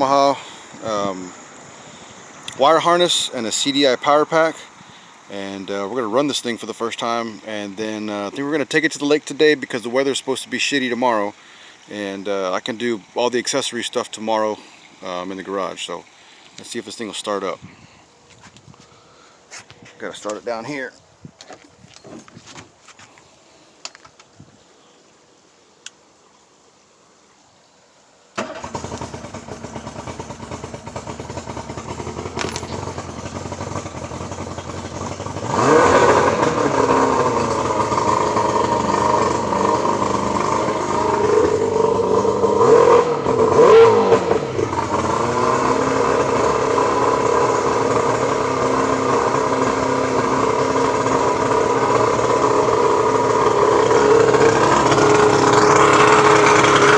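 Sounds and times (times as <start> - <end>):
outboard motor running: 28.4 - 56.9.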